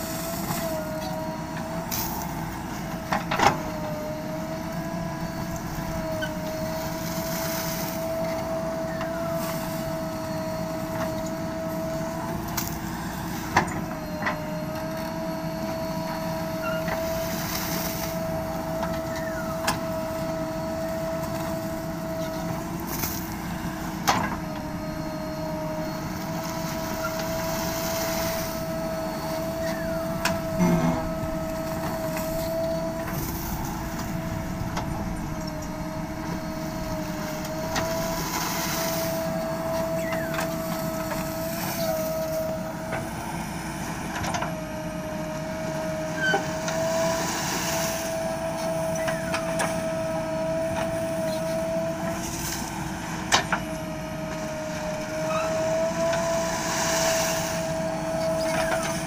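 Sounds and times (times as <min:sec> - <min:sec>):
diesel engine whining under load: 0:00.0 - 0:59.0
heavy clunk: 0:30.2 - 0:32.3.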